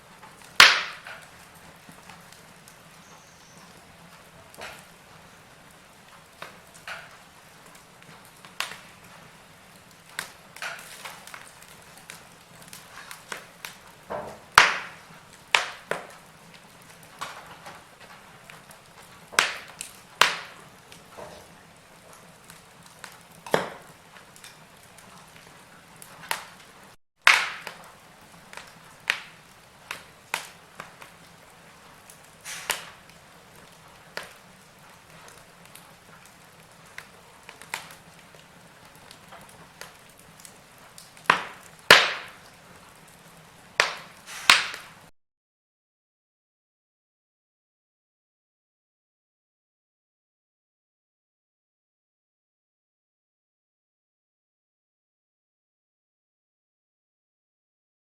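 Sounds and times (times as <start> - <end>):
fire crackling and popping: 0.0 - 45.1
soft fire hiss: 0.0 - 45.1.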